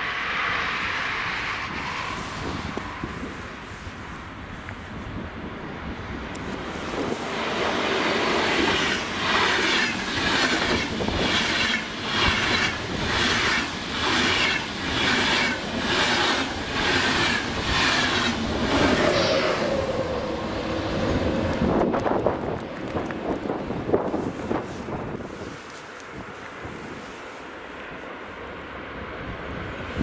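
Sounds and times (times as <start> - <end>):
locomotive hum: 0.0 - 30.0
train wheels rushing past: 6.4 - 25.2.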